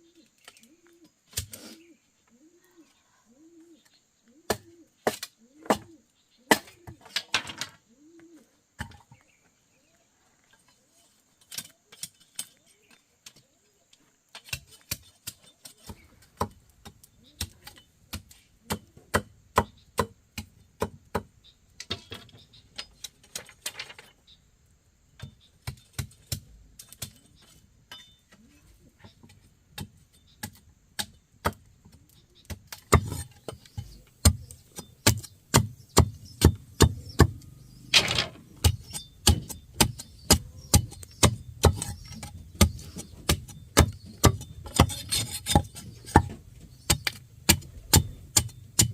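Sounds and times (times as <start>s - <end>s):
hand tool knocking wood: 32.5s - 37.4s, 38.0s - 48.9s.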